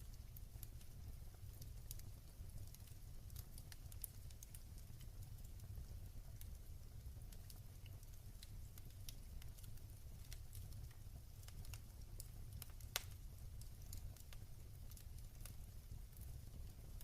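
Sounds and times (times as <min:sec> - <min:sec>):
low fire rumble: 0:00.0 - 0:17.0
wood fire crackling: 0:00.0 - 0:17.0.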